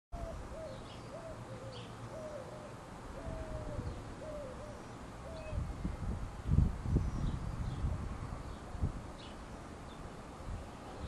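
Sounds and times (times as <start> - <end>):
bird low hooting calls: 0.2 - 5.7.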